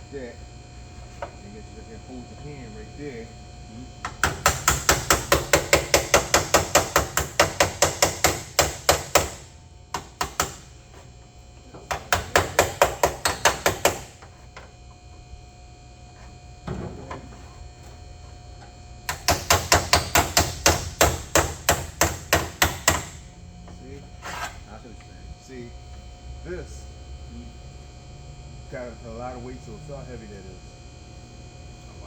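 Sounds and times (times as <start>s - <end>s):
hammer tapping sheet metal: 11.9s - 14.1s, 19.1s - 23.2s.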